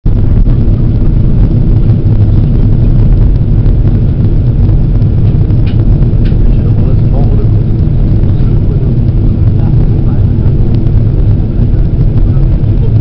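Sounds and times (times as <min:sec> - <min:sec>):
airliner engines and airflow rumble: 0:00.0 - 0:13.0.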